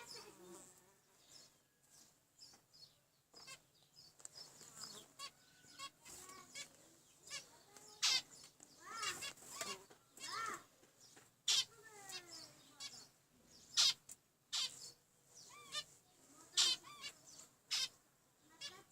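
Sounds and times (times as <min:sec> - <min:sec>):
finches calling: 0:04.5 - 0:10.6, 0:11.5 - 0:15.9, 0:16.5 - 0:18.9.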